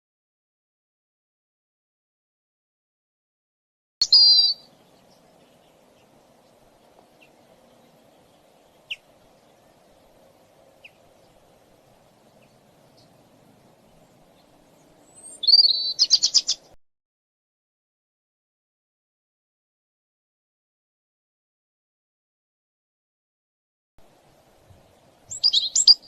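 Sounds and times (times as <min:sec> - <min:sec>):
small songbird calling: 0:04.0 - 0:16.8, 0:24.6 - 0:26.0
faint low background hum: 0:04.4 - 0:16.8, 0:24.0 - 0:26.0.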